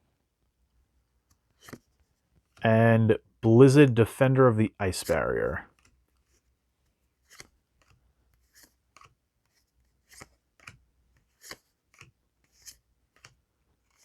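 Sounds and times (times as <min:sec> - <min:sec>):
trading cards sliding: 0:01.4 - 0:02.0, 0:07.2 - 0:14.0.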